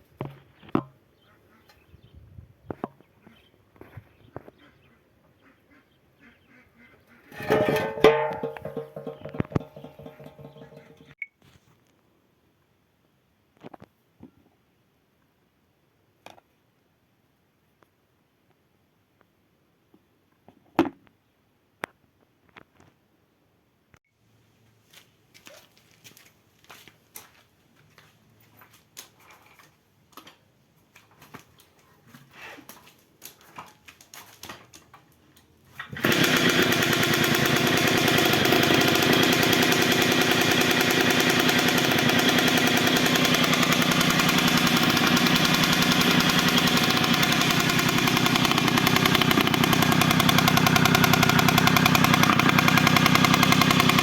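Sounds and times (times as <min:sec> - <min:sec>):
moped engine running: 0:07.3 - 0:11.2, 0:36.0 - 0:54.0.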